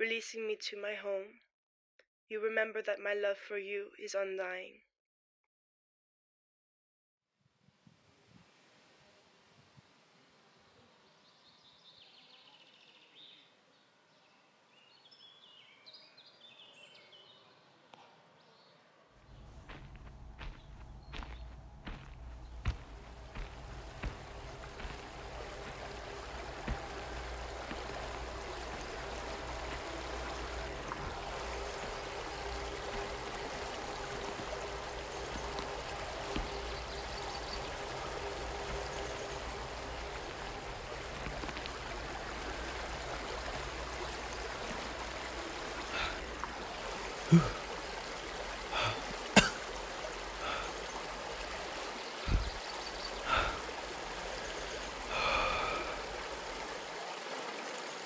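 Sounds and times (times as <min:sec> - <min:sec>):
river water running: 0:19.2 - 0:58.0.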